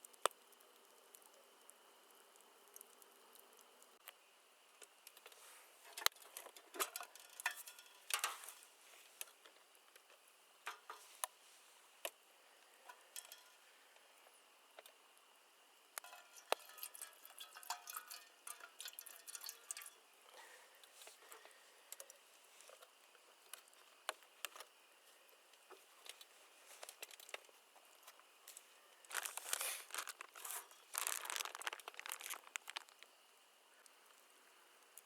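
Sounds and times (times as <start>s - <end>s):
faint steady hiss: 0.0s - 35.0s
objects clicking and clattering: 5.2s - 8.6s, 12.9s - 13.6s, 16.0s - 20.0s, 29.1s - 33.1s.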